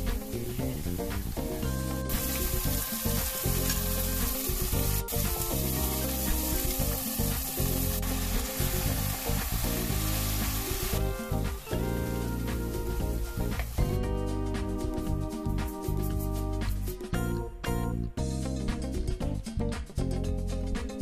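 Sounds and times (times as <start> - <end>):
food sizzling in oil: 0.0 - 15.6.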